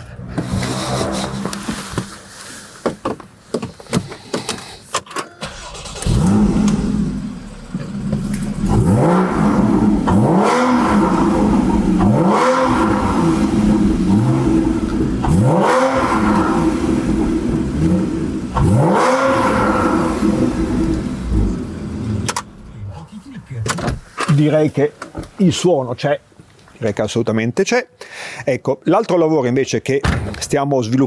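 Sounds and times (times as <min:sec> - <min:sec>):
car engine starting and revving: 0:00.0 - 0:02.4, 0:05.4 - 0:22.9.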